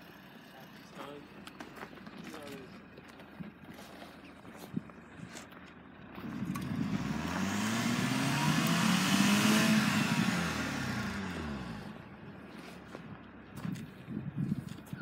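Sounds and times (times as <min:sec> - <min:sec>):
car engine revving: 0:06.1 - 0:12.4.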